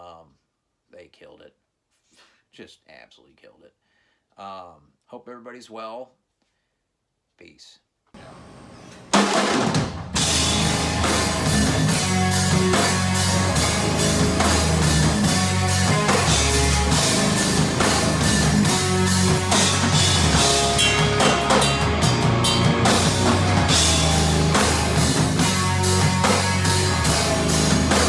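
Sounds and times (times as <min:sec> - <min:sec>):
drum kit beat: 0:08.2 - 0:28.0
guitar: 0:08.2 - 0:28.0
rock song: 0:08.2 - 0:28.0.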